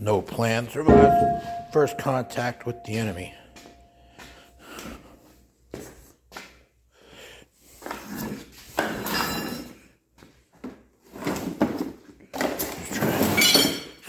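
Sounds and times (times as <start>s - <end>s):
sharp knocks: 0.9s - 3.1s
metallic ringing: 0.9s - 3.3s.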